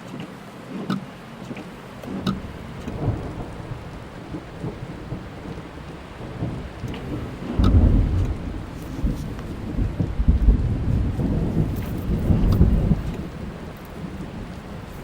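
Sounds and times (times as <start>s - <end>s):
rain on a car: 0.0s - 15.0s
raindrop ticks: 0.0s - 15.0s
thunder rumbling: 1.7s - 15.0s.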